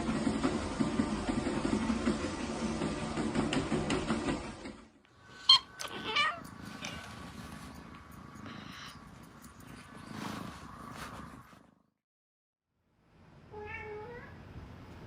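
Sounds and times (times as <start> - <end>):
cat crying: 5.4 - 6.5.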